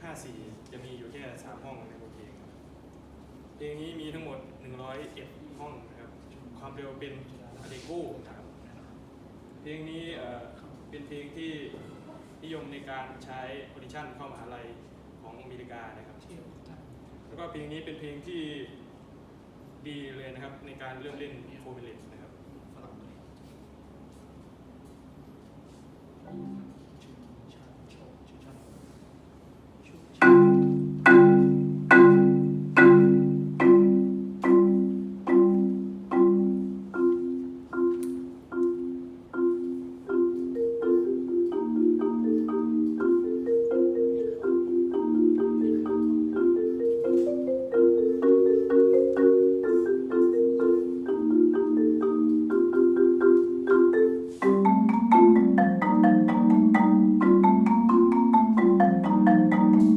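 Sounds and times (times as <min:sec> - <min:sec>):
marimba playing: 0:26.3 - 0:26.8, 0:30.2 - 0:59.9.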